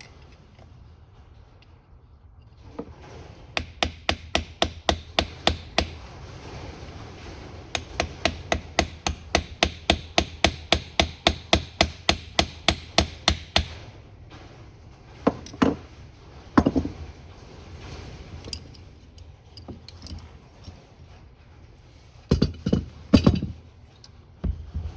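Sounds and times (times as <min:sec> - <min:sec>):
hammer tapping on metal: 0:03.6 - 0:06.0, 0:07.8 - 0:13.8
heavy hammer knocks: 0:03.6 - 0:06.0, 0:07.7 - 0:13.8.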